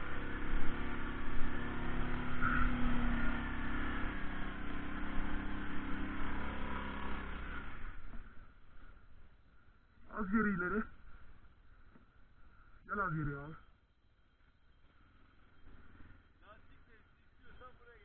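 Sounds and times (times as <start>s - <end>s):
quad bike engine revving: 0.0s - 8.3s.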